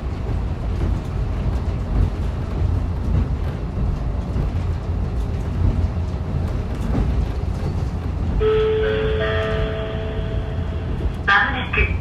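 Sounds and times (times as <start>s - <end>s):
wheels on rails: 0.0s - 11.3s
railcar engine rumble: 0.0s - 12.0s.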